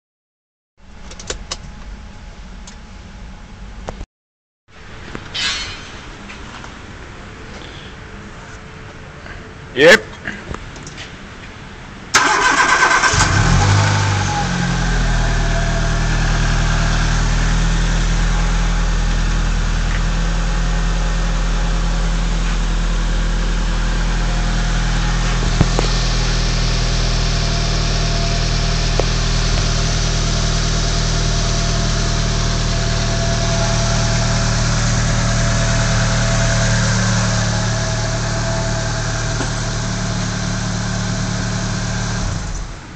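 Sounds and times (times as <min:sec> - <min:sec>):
car engine idling: 0:12.1 - 0:42.9
starter cranking engine: 0:12.2 - 0:13.8.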